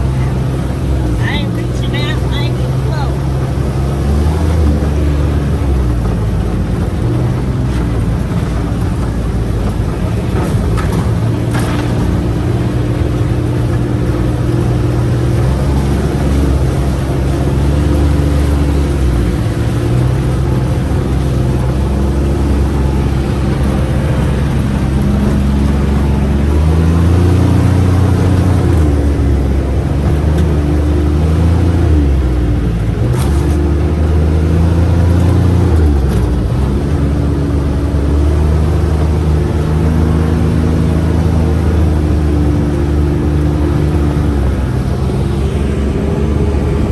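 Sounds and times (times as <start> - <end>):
vehicle engine revving: 0.0 - 46.9
wind and road noise: 0.0 - 46.9.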